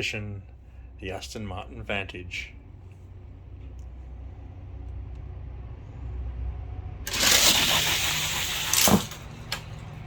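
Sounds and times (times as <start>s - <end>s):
toy cars rattling down plastic track: 7.1s - 9.8s.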